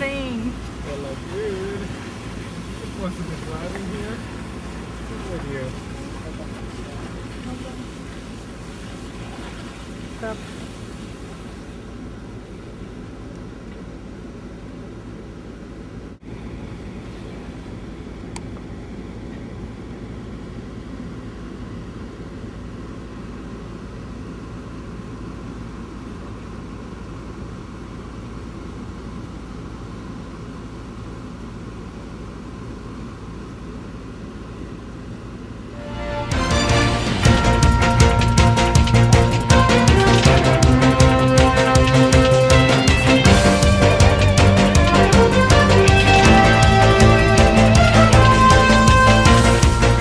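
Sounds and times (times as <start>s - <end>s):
vehicle engine and road noise: 0.0s - 50.0s.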